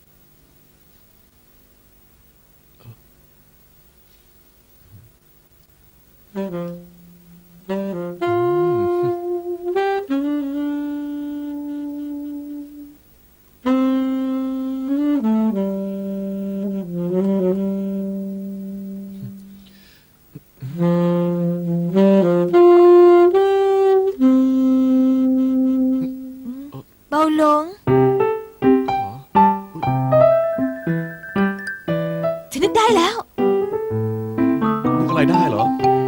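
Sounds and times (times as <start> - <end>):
saxophone slow melody: 6.3 - 13.0, 13.6 - 19.7, 20.6 - 26.7, 27.9 - 32.5, 33.4 - 36.0.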